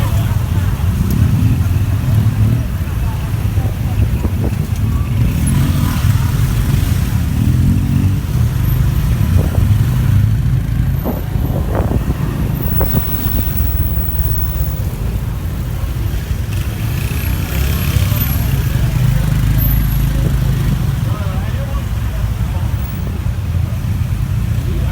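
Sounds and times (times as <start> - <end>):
motorbike engine rumble: 0.0 - 24.9.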